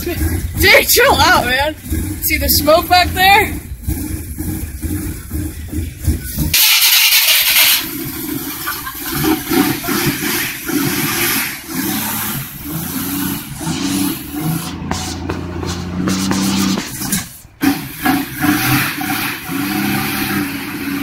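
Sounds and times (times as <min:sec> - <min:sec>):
car engine running unevenly: 0:00.0 - 0:19.5
loud rushing noise: 0:06.5 - 0:19.5.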